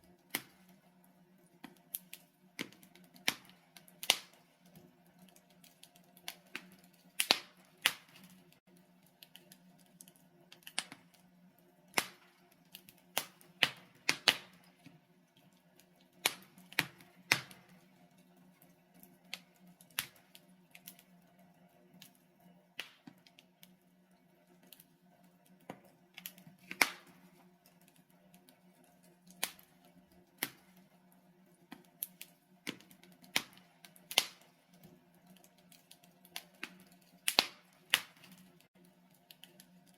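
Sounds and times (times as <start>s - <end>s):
logs crackling in fireplace: 0.0s - 39.9s
sharp pops and snaps: 0.3s - 0.7s, 1.6s - 8.6s, 9.2s - 11.2s, 11.9s - 14.7s, 15.8s - 17.7s, 19.2s - 21.0s, 22.8s - 23.7s, 25.6s - 27.4s, 29.3s - 29.7s, 31.7s - 34.6s, 35.4s - 38.7s.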